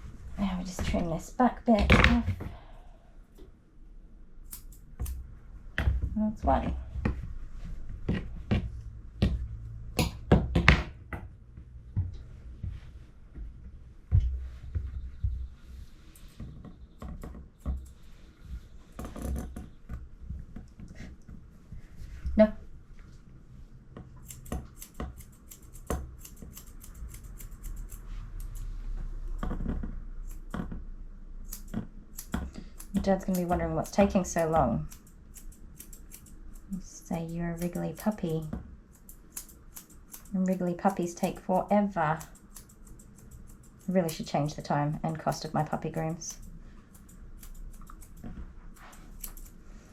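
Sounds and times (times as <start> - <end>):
scissors snipping fur: 4.4 - 5.2, 24.1 - 28.7, 29.4 - 30.8, 31.4 - 49.8.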